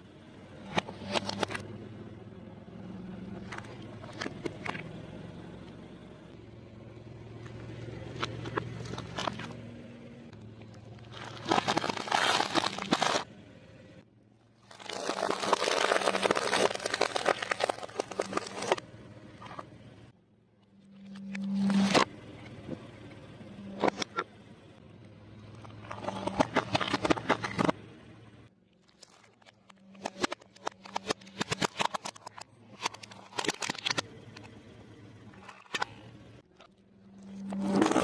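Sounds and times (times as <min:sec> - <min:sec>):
low engine hum: 0:00.0 - 0:14.8, 0:16.0 - 0:38.0
dense crunching and crackling: 0:08.0 - 0:09.6, 0:10.4 - 0:13.3, 0:14.5 - 0:18.8, 0:25.4 - 0:27.8, 0:28.7 - 0:34.4, 0:35.3 - 0:38.0
tyres crushing objects: 0:11.0 - 0:13.3, 0:14.7 - 0:18.8, 0:25.8 - 0:27.8.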